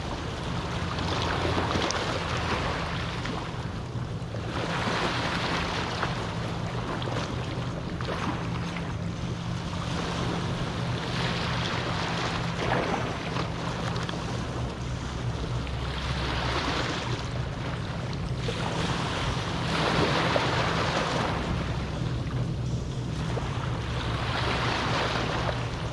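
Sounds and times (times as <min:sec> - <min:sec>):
small waves washing onto beach: 0:00.0 - 0:25.9
steady low rumble: 0:00.0 - 0:25.9.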